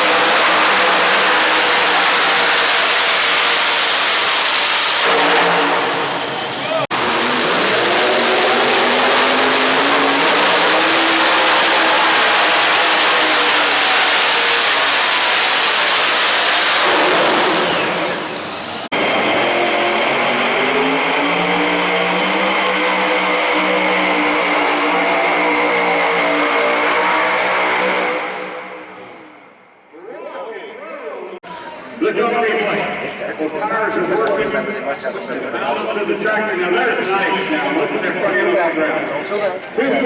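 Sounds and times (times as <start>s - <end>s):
tractor engine at full throttle: 0.0s - 29.5s.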